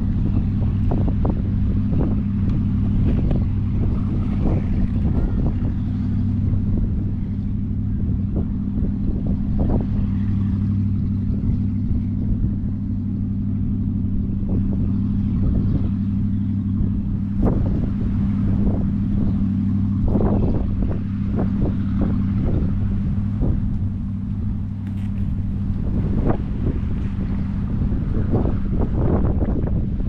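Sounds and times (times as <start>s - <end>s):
engine droning: 0.0s - 30.0s
wind on microphone: 0.0s - 30.0s.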